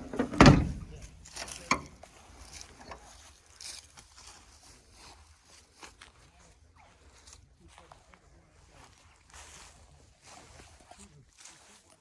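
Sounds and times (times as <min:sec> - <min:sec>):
short knocks: 0:00.0 - 0:01.1
faint scuffs and ticks: 0:01.0 - 0:12.0.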